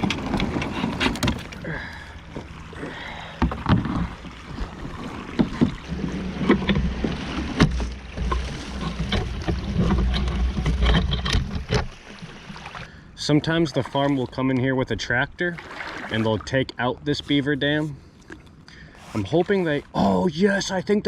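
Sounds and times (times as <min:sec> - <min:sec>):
kayak hull knocking on branches: 0:05.1 - 0:12.6.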